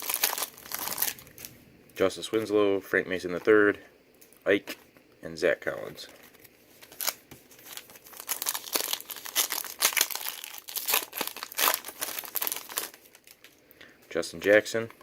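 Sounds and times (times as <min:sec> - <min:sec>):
card pack wrapper tearing: 0:00.0 - 0:01.5, 0:06.8 - 0:13.5.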